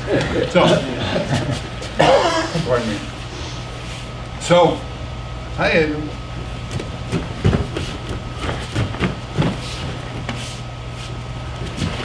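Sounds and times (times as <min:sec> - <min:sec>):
ventilation hum: 0:00.0 - 0:12.0
thumps and shuffling on mats: 0:06.4 - 0:12.0.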